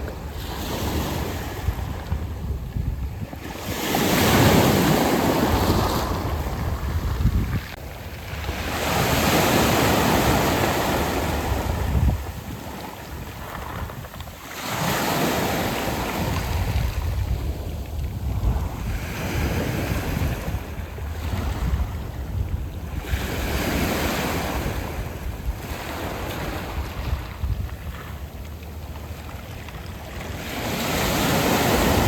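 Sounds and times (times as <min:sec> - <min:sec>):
waves washing onto pebbles: 0:03.4 - 0:20.4.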